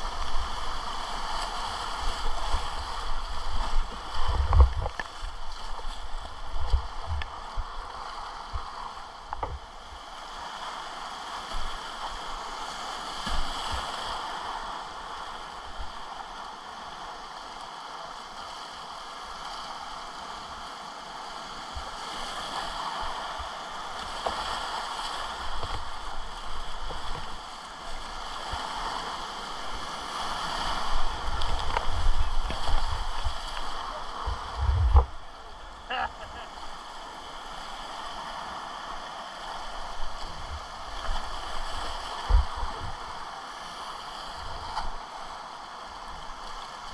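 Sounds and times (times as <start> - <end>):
whitewater rapids rushing: 0.0 - 7.2, 22.5 - 46.9
wind buffeting microphone: 1.9 - 7.8, 30.6 - 35.2, 41.6 - 43.0.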